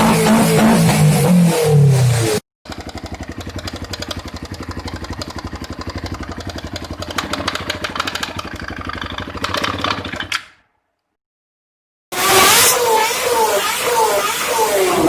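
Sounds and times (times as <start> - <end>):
engine idling: 2.7 - 10.2.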